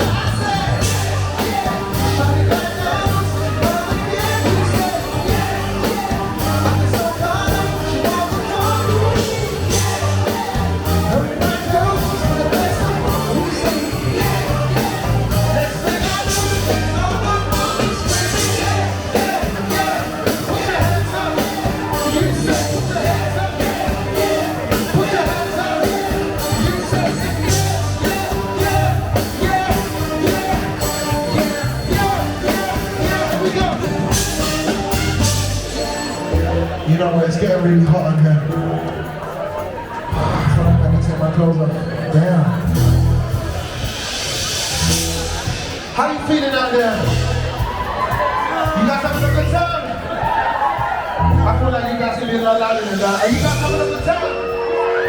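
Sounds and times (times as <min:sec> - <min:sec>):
person singing: 0:00.0 - 0:36.8
steady drum beat: 0:00.0 - 0:36.9, 0:42.6 - 0:54.8
pulsing bass line: 0:00.0 - 0:37.2, 0:40.1 - 0:46.0, 0:47.0 - 0:48.0, 0:49.1 - 0:49.8, 0:51.2 - 0:51.9, 0:53.3 - 0:54.5
live funk band playing: 0:00.0 - 0:55.0.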